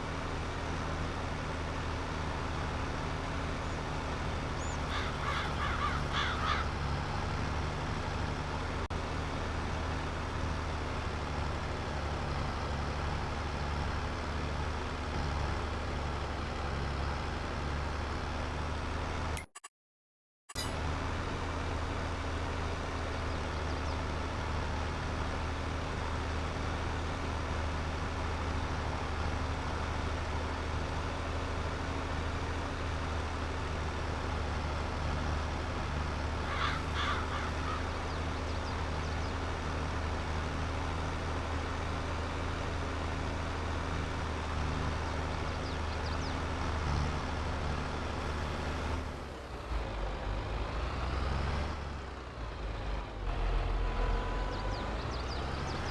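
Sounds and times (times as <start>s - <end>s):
bird calling: 4.6s - 6.7s, 36.4s - 39.4s
tractor engine droning: 20.5s - 55.9s.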